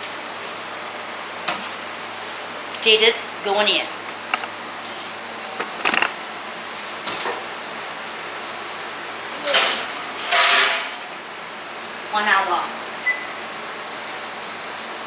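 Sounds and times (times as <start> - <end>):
oven rack clattering: 8.6 - 11.3.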